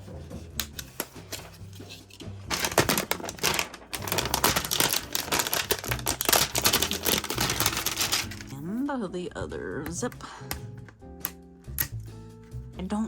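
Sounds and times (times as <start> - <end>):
faint background music: 0.0 - 13.0
plastic packaging crinkling: 0.9 - 8.5.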